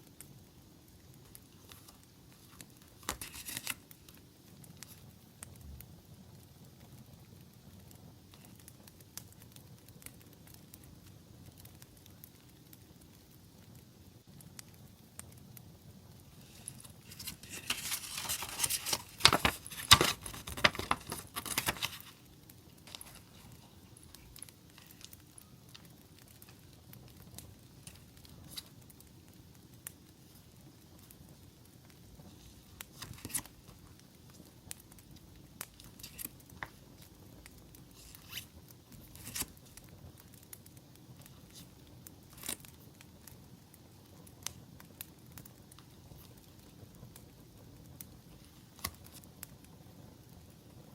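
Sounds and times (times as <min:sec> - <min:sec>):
low steady hiss: 0:00.0 - 0:50.9
soft ticks and crackles: 0:00.0 - 0:50.9
packaging rustling and crinkling: 0:01.6 - 0:03.9, 0:16.3 - 0:25.2, 0:32.2 - 0:33.8, 0:35.8 - 0:36.8, 0:38.0 - 0:39.6.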